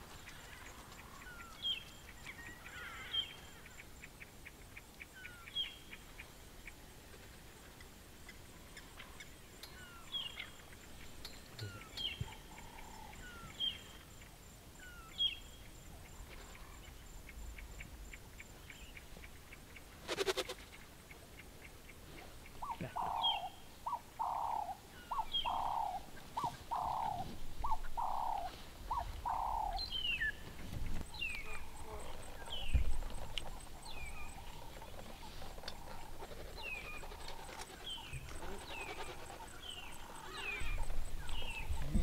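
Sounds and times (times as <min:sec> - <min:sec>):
fast lower bird calls: 0:20.0 - 0:20.8, 0:22.4 - 0:30.4, 0:33.5 - 0:42.0.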